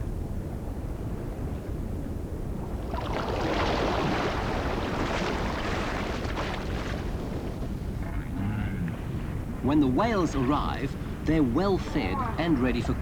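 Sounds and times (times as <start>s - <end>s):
sea water splashing: 2.6s - 8.0s.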